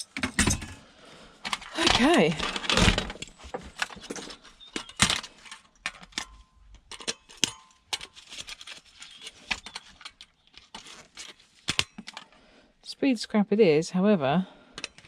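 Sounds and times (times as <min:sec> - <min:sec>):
clinks of small parts and tools: 0:00.0 - 0:00.8, 0:01.4 - 0:12.4, 0:14.8 - 0:15.0.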